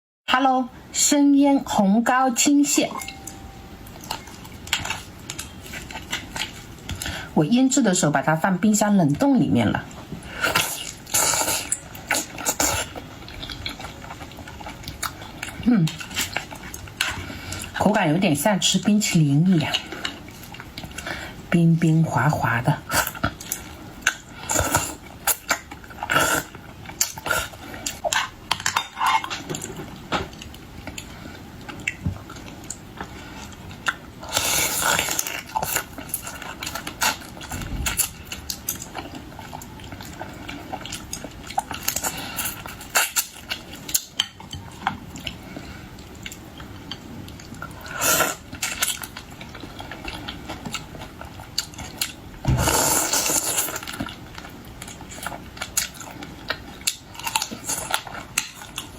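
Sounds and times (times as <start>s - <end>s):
wet chewing and sucking: 10.2s - 17.8s, 22.9s - 28.3s.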